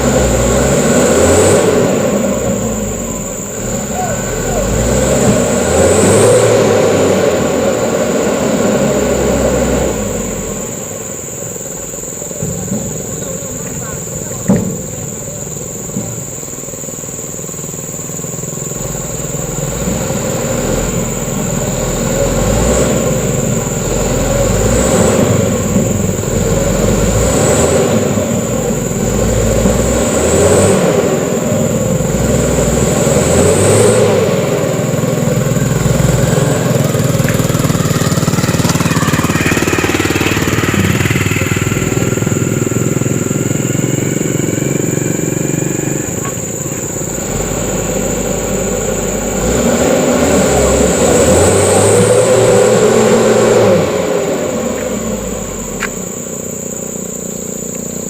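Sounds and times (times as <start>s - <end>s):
truck diesel engine under load: 0.0s - 58.0s
rising whine: 18.6s - 58.0s.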